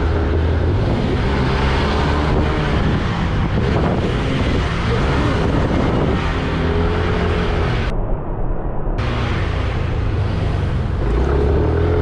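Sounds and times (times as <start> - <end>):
wind noise on microphone: 0.0 - 11.0.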